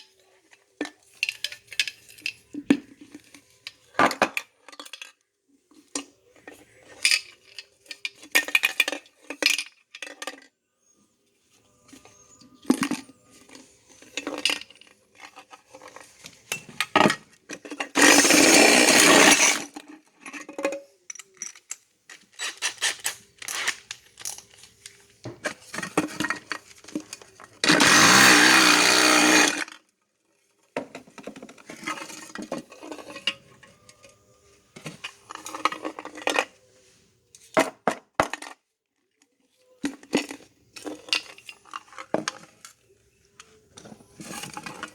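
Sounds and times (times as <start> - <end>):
mechanical whirring: 27.7 - 29.6.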